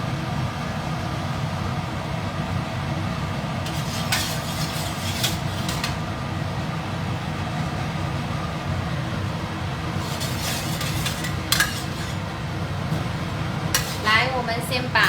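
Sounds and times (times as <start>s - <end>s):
kitchen equipment rumble: 3.3s - 6.8s, 9.1s - 15.0s
clattering and scraping: 3.7s - 6.1s, 10.0s - 12.3s, 13.7s - 14.2s.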